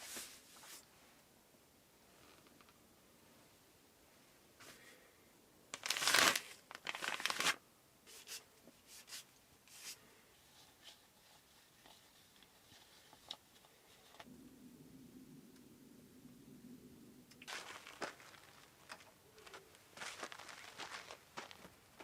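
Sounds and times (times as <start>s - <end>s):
crinkling and rustling: 5.7s - 14.3s, 17.3s - 22.0s
low steady hum: 9.4s - 22.0s.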